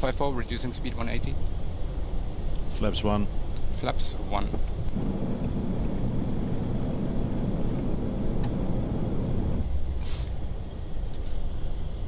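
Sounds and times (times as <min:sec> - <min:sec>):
airflow and engine rumble: 0:00.0 - 0:12.0
short hiss: 0:10.0 - 0:10.4.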